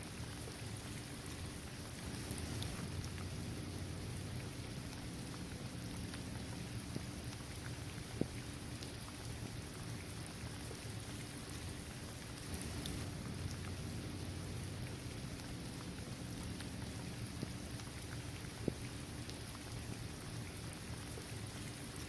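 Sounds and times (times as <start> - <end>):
steady rain falling: 0.0 - 22.0
single raindrops ticking: 12.4 - 17.9.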